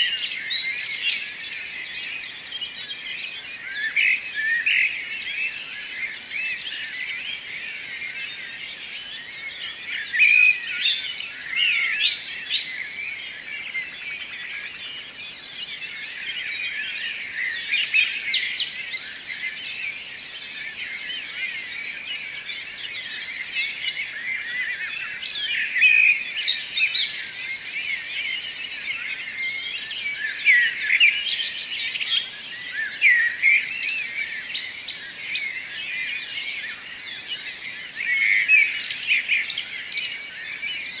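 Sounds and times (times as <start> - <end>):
birds chirping and trilling: 0.0 - 41.0.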